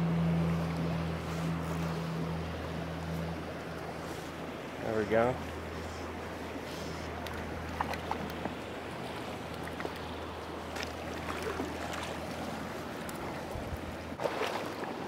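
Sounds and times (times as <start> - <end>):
creek water rushing: 0.0 - 15.0
light clicks and splashes: 0.5 - 15.0.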